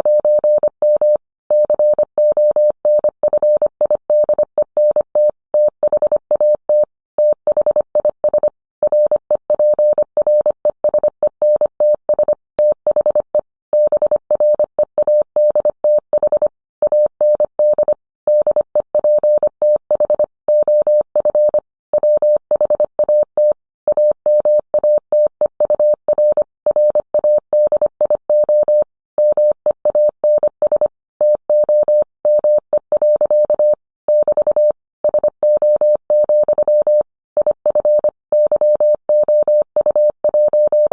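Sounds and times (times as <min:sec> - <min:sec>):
morse code tone: 0:23.9 - 0:40.9.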